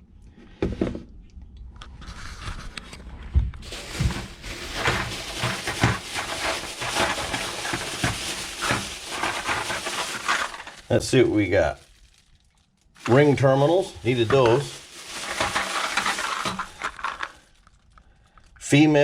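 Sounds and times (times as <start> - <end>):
plastic packaging crinkling: 3.6 - 18.6.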